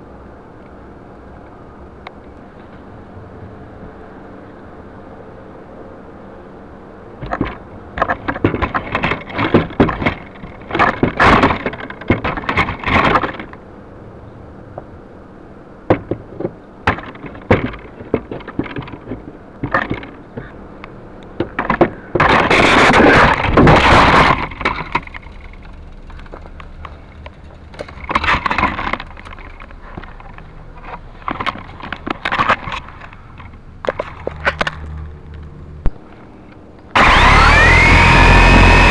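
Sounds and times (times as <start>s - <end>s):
faint steady hum: 0.0s - 38.9s
sharp knocks and clatter: 7.2s - 13.6s, 15.9s - 20.6s, 21.3s - 35.0s
loud scraping rustling: 21.5s - 33.4s.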